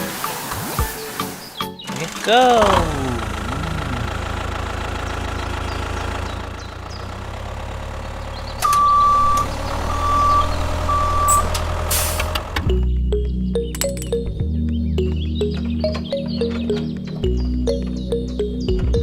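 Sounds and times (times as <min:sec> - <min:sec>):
truck engine running: 0:02.0 - 0:14.4
reversing alarm beeping: 0:08.6 - 0:12.2.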